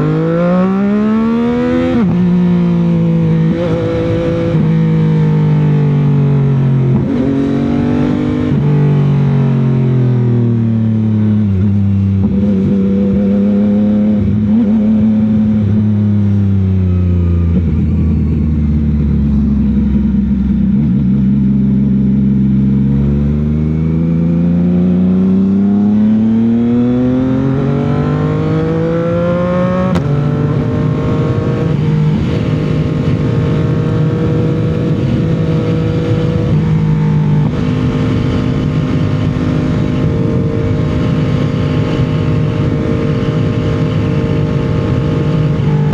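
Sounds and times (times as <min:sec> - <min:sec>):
motorcycle engine and exhaust: 0:00.0 - 0:45.9.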